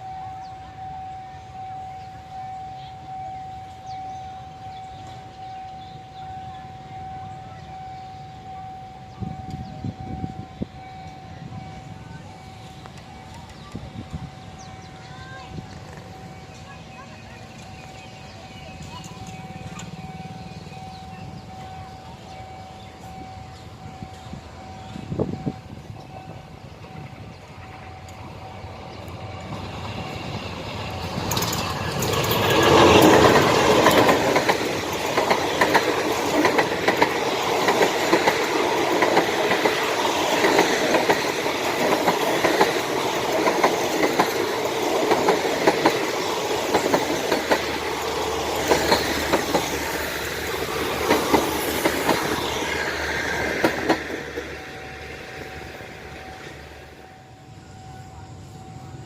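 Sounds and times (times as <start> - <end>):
diesel locomotive passing: 0.0 - 59.0
train wheels clattering over rails: 24.0 - 56.7.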